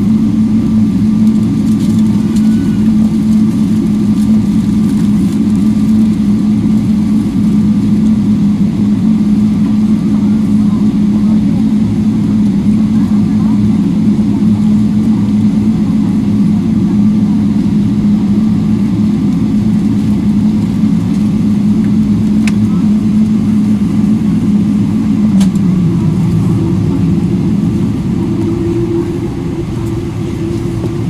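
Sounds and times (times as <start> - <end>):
higher hum: 0.0 - 4.4, 20.5 - 31.0
vehicle low hum: 17.7 - 31.0.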